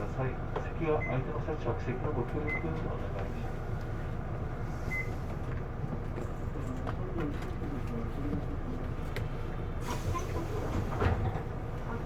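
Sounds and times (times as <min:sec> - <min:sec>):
bus diesel engine idling: 0:08.8 - 0:12.0.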